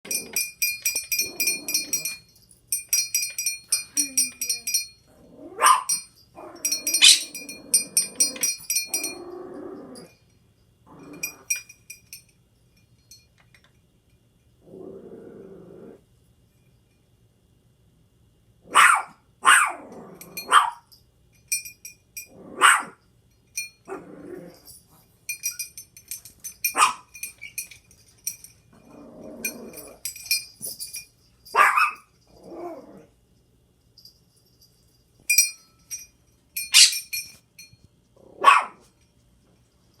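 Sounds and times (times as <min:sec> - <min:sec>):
small bell jingling: 0:00.1 - 0:13.9, 0:20.0 - 0:22.6, 0:23.3 - 0:37.9
dog growling: 0:05.1 - 0:05.7, 0:06.4 - 0:10.1, 0:14.6 - 0:16.0, 0:23.9 - 0:24.7, 0:28.8 - 0:30.1, 0:32.3 - 0:33.1
small dog barking: 0:05.6 - 0:06.0, 0:18.7 - 0:19.8, 0:20.5 - 0:20.8, 0:22.6 - 0:23.0, 0:26.8 - 0:27.1, 0:31.5 - 0:32.1, 0:38.4 - 0:38.8.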